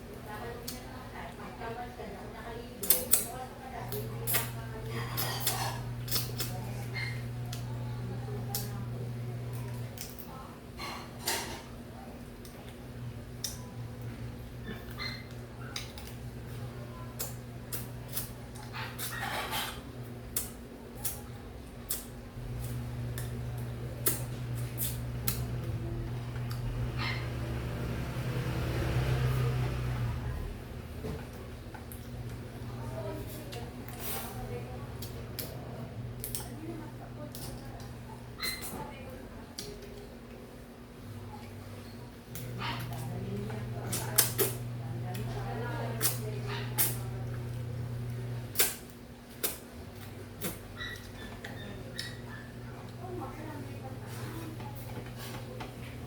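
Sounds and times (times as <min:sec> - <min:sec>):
low machine hum: 0:00.0 - 0:56.0.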